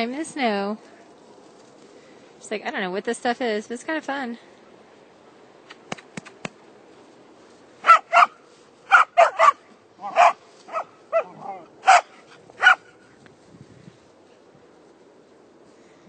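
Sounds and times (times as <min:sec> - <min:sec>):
puppy barking in high yips: 0:07.8 - 0:13.0.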